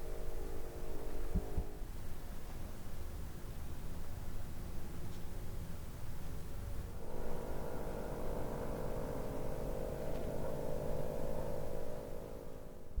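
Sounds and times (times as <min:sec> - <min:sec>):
car engine running: 0:07.0 - 0:12.9.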